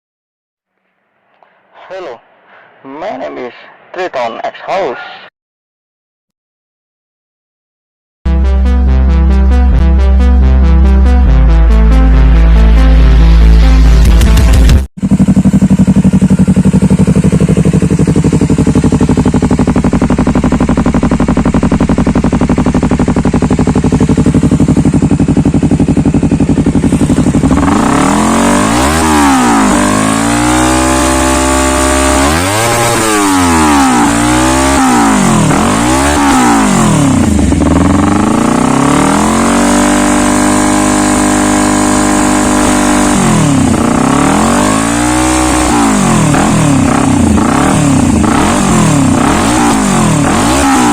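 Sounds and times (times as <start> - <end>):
motorcycle engine idling and revving: 10.9 - 50.9.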